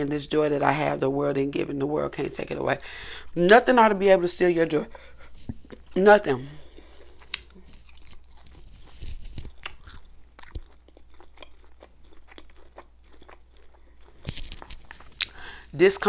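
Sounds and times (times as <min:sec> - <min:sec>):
chewing noodles: 0:06.6 - 0:15.4.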